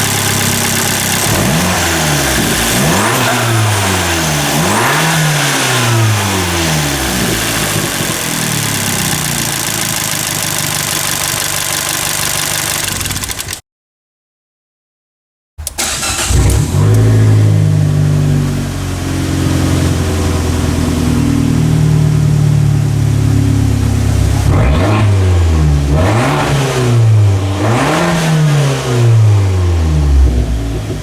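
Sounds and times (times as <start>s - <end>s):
car engine revving: 0.0s - 13.2s, 15.6s - 31.0s
car engine fast idle: 0.0s - 13.5s, 15.8s - 24.5s.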